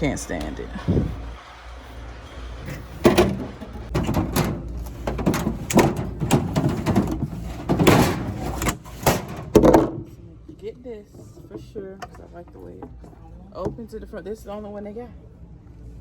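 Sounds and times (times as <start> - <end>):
plastic bins knocking and clattering: 2.7 - 10.2.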